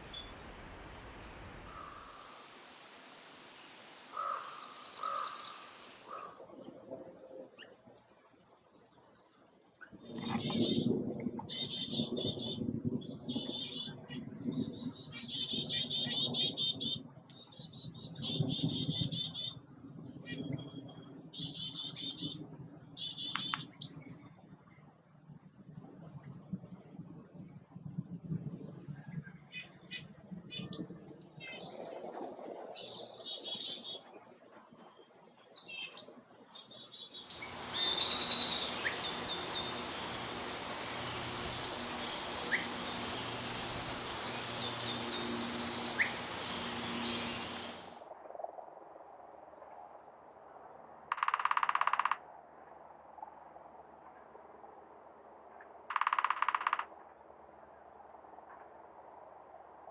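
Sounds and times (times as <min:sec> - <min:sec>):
steady hiss: 0:00.0 - 0:06.8, 0:37.1 - 0:48.0
bird calls: 0:01.7 - 0:07.8, 0:09.8 - 0:12.6, 0:23.0 - 0:24.0, 0:35.6 - 0:47.9
songbirds chattering and chipping: 0:01.7 - 0:24.7, 0:35.5 - 0:47.9
faint high bird chirps: 0:35.6 - 0:47.8.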